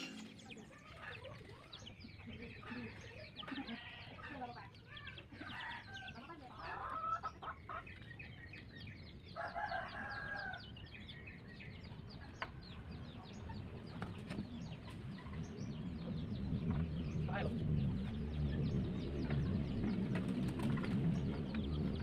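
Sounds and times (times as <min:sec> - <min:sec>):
chickens clucking: 0:00.0 - 0:10.4, 0:11.8 - 0:17.0, 0:18.9 - 0:22.0
low rumble: 0:14.7 - 0:22.0.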